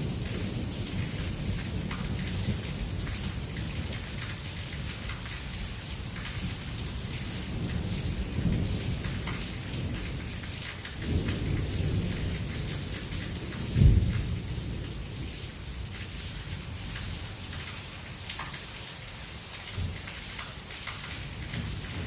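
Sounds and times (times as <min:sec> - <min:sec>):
heavy rain hissing: 0:00.0 - 0:18.2
thunder rumbling: 0:11.0 - 0:15.9.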